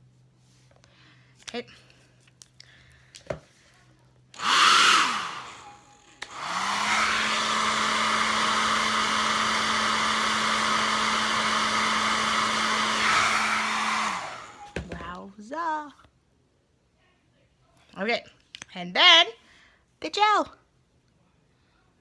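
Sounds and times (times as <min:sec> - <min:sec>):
hair dryer running: 0:04.4 - 0:15.0.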